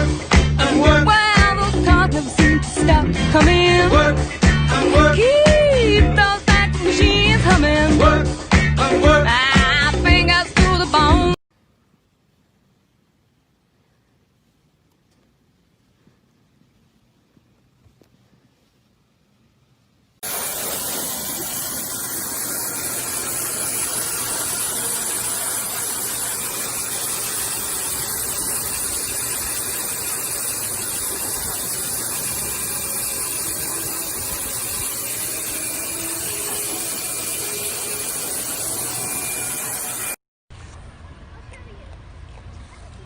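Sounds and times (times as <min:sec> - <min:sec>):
steady rushing hiss: 0:20.2 - 0:40.2.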